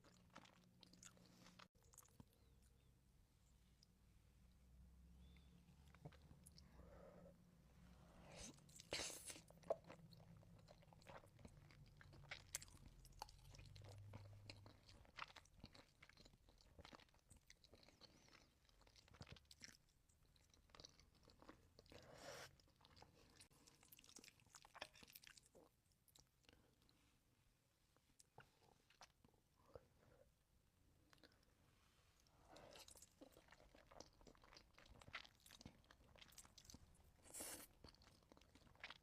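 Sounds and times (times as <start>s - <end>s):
person chewing food: 0.0s - 2.9s, 8.2s - 27.0s, 32.2s - 39.0s.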